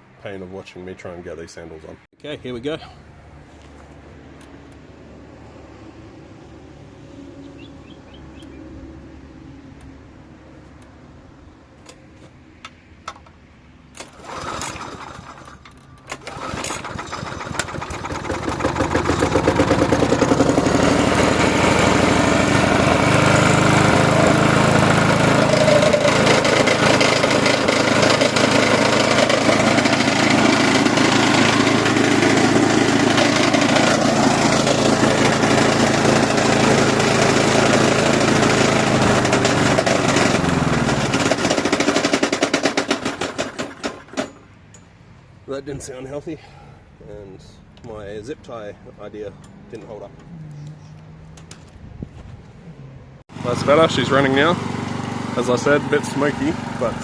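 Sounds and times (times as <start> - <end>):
lawnmower starter clicks: 12.6 - 44.8
lawnmower engine running: 13.9 - 44.5, 53.3 - 57.0
starter cord pull: 14.0 - 20.6.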